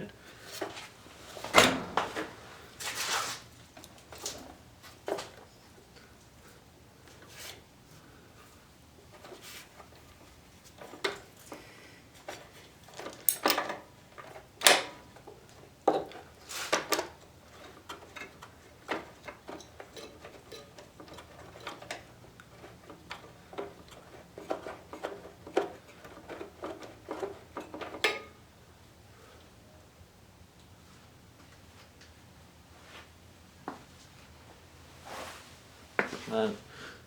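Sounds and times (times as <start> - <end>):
metal tool clicks and clanks: 13.0 - 13.8.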